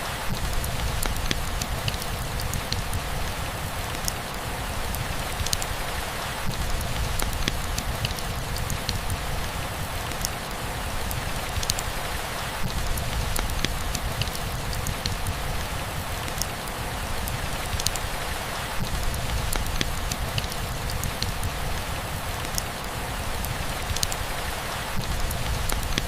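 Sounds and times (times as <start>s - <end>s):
steady rainfall: 0.0s - 26.0s
drips ticking on hard surface: 19.1s - 21.6s.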